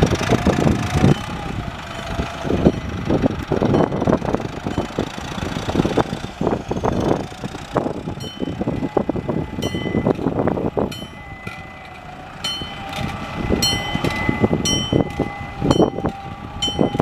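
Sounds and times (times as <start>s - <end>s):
rough knocks and buffeting: 0.0s - 17.0s
tractor diesel engine running: 0.0s - 17.0s.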